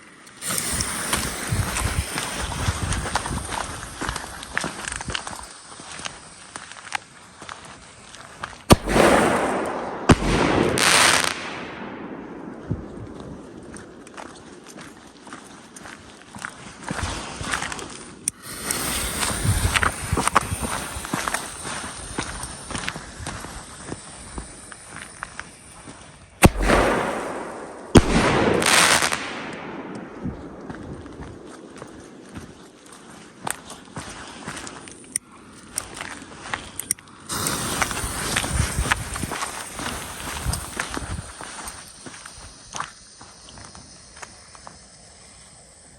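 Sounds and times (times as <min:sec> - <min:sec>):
firework crackling: 0:00.0 - 0:15.7, 0:16.6 - 0:32.8, 0:37.3 - 0:45.9
high hiss: 0:00.0 - 0:35.2, 0:36.6 - 0:45.9
firework bangs: 0:00.4 - 0:05.2, 0:08.7 - 0:14.5, 0:18.4 - 0:25.6, 0:26.4 - 0:32.2, 0:37.3 - 0:42.8.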